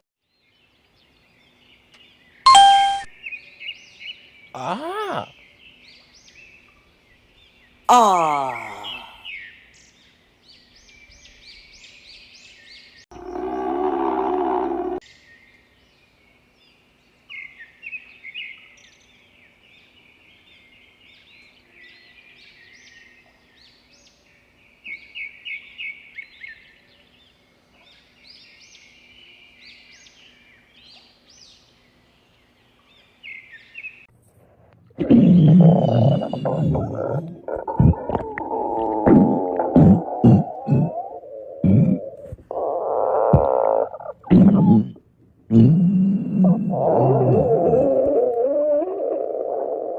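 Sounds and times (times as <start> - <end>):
small birds chirping: 0.4 - 16.4, 35.0 - 49.9
low pitched growl: 35.0 - 49.9.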